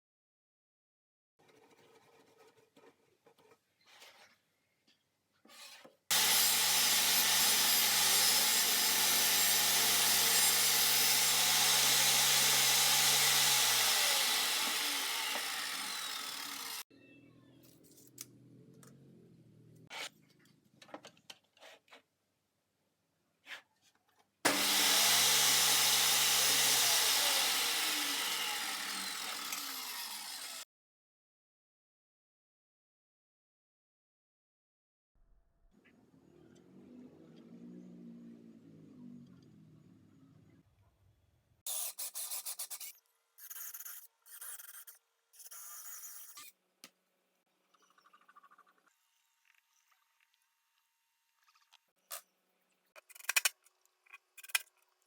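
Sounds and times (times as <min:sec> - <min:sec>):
power tool cutting plywood: 0:06.1 - 0:16.8, 0:24.5 - 0:30.6.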